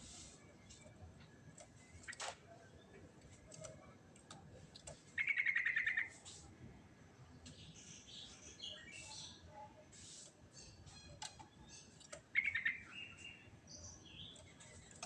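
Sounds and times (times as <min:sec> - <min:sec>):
bird trilling and chirping: 0:05.0 - 0:06.2, 0:10.0 - 0:15.0.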